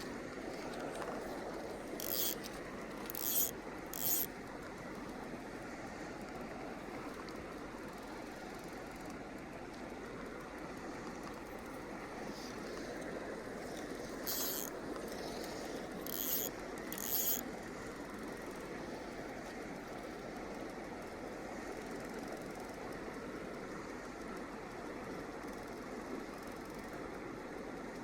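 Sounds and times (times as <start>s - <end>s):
river flowing: 0.0s - 8.5s, 10.2s - 18.0s.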